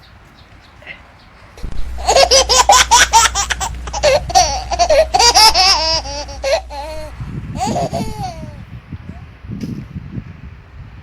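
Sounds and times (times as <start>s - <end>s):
low hum: 1.6s - 8.6s
high-pitched laughter: 2.0s - 8.6s.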